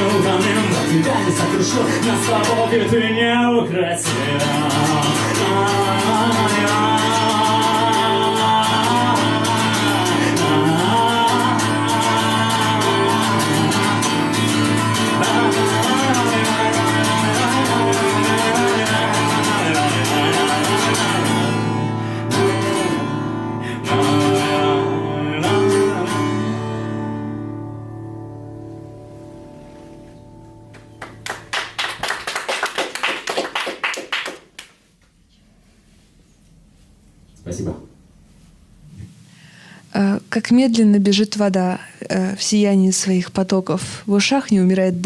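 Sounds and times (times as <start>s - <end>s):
acoustic guitar strumming: 0.0s - 31.5s.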